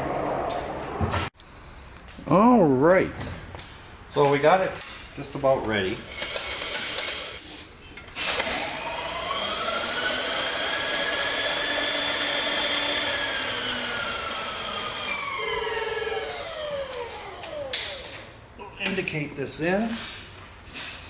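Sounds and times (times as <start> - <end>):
milling machine motor whine: 8.4 - 18.1.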